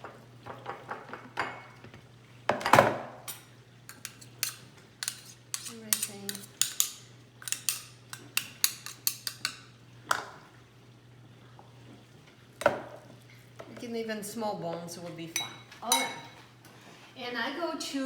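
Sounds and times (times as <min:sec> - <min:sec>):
spoon clinking against jar: 0:03.9 - 0:09.6.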